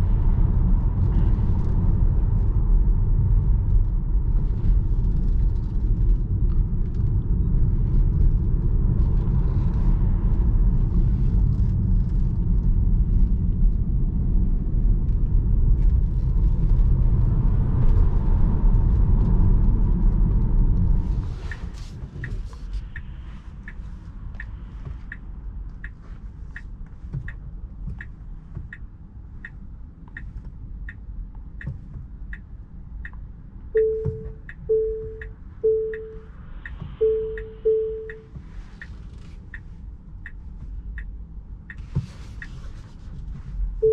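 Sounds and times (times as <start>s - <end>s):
turn signal ticking: 21.5s - 42.8s.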